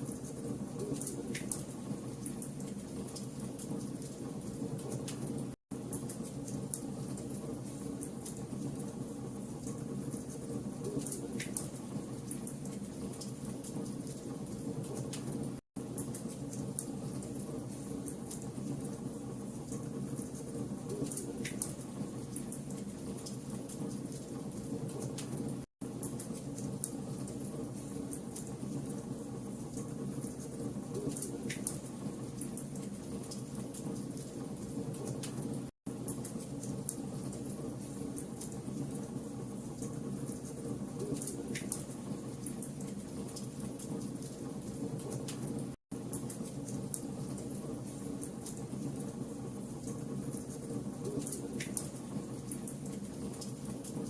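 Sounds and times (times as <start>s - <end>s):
fire crackling and popping: 29.7s - 39.0s, 39.8s - 54.0s.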